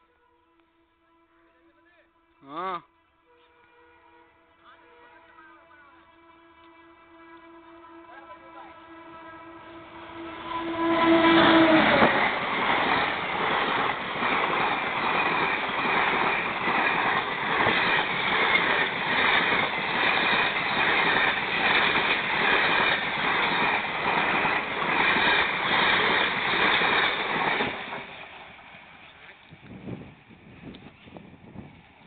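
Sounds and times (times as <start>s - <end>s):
train wheels clattering over rail joints: 11.2s - 29.2s.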